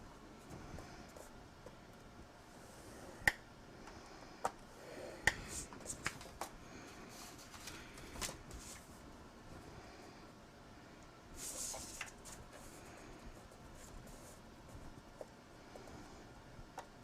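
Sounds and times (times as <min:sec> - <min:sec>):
paper rustling: 0:07.2 - 0:08.9.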